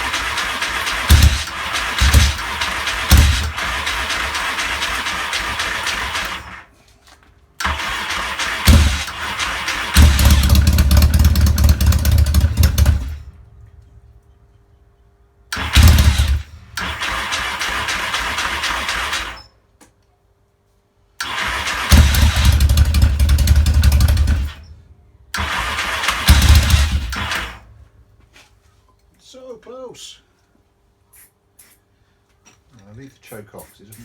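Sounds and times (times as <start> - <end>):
motorcycle engine running rough: 0.0 - 6.5, 7.7 - 13.4, 15.6 - 19.3, 21.8 - 24.7, 25.4 - 27.6
electric starter cranking: 0.0 - 6.7, 7.6 - 13.4, 15.5 - 19.5, 21.2 - 27.7.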